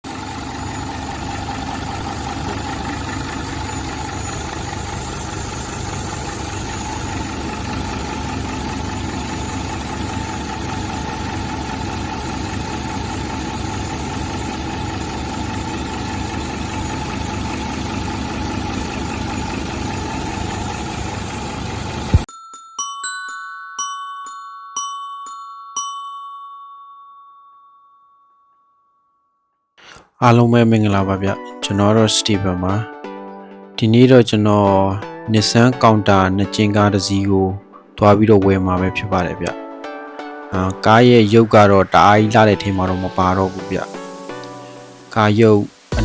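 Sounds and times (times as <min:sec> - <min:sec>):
diesel truck engine idling: 0:00.0 - 0:22.3, 0:36.5 - 0:46.0
chime-like musical notes: 0:22.3 - 0:29.5.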